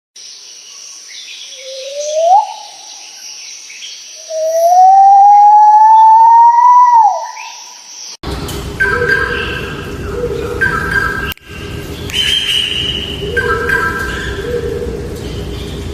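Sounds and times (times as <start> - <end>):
bird rising whistled calls: 1.5 - 3.4, 4.2 - 7.9, 8.8 - 11.4, 12.1 - 15.0
steady high hiss: 7.0 - 15.9.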